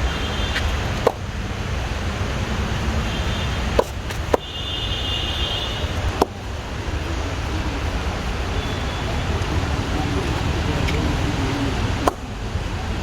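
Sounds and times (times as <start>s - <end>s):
steady low rumble: 5.7s - 13.0s.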